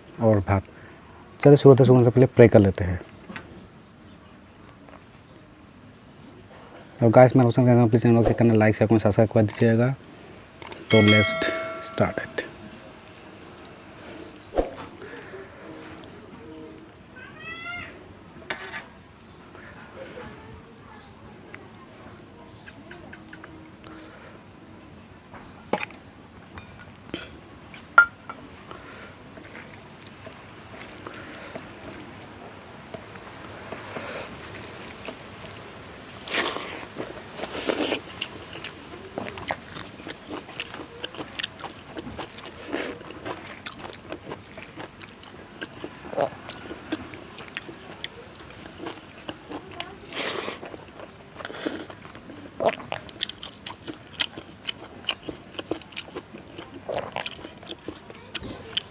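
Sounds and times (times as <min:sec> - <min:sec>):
chewing and crunching food: 0:28.7 - 0:58.9.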